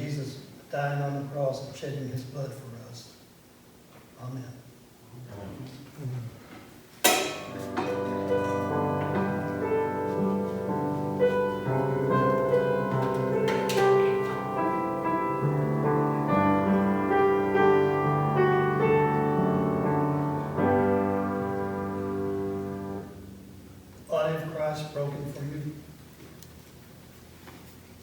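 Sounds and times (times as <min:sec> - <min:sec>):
piano playing slow chords: 0:07.1 - 0:24.1.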